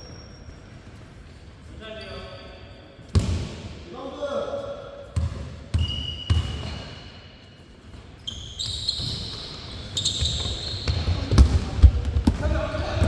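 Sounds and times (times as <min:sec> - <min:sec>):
sneakers squeaking on floor: 0:00.0 - 0:03.3, 0:05.1 - 0:13.0
basketball bouncing: 0:05.2 - 0:06.7, 0:10.0 - 0:13.0.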